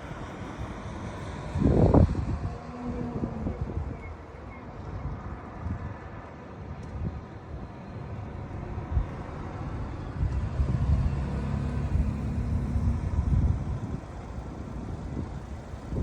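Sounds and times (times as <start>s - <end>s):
wind rumbling on microphone: 0.0s - 16.0s
vehicle engine humming past: 8.0s - 16.0s.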